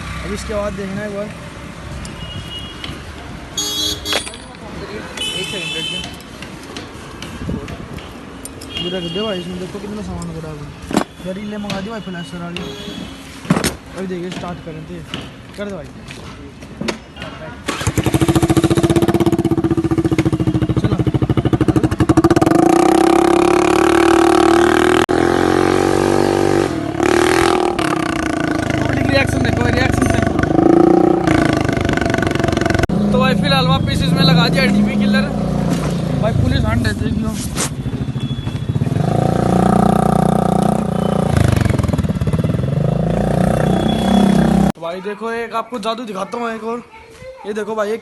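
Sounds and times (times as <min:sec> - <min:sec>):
scooter engine revving: 0:17.6 - 0:37.3, 0:37.9 - 0:44.8.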